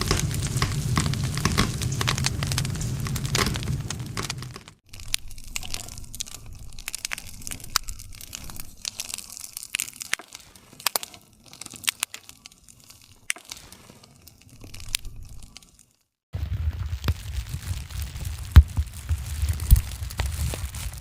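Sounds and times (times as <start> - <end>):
low rumble of flames: 0.0 - 9.7, 16.3 - 21.0
loud wood crack: 0.0 - 15.8, 16.4 - 21.0
campfire crackling: 0.0 - 21.0.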